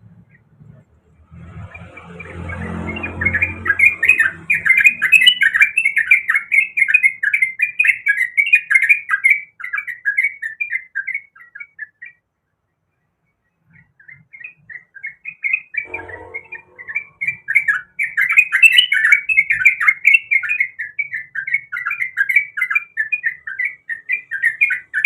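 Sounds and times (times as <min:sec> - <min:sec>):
bird singing chattering notes: 0:15.8 - 0:18.0
low hum: 0:15.9 - 0:17.8.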